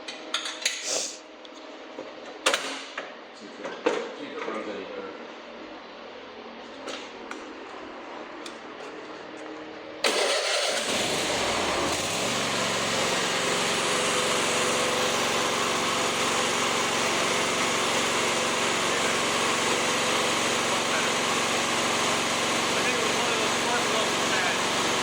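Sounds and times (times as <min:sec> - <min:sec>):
lawnmower engine starting and running: 0:10.0 - 0:25.0.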